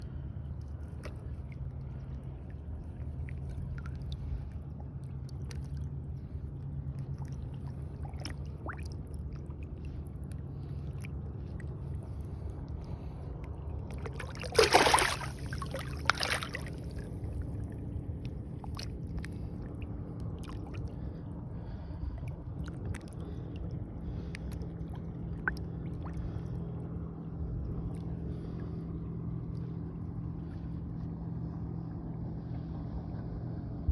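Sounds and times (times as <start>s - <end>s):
steady low hum: 0.0s - 33.9s
water sloshing against boat: 0.0s - 33.9s
loud splash: 14.1s - 16.8s.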